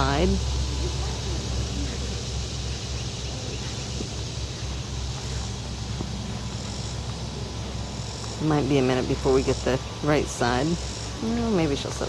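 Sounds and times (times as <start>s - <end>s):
even hiss: 0.0s - 12.0s
low rumble: 0.0s - 12.0s.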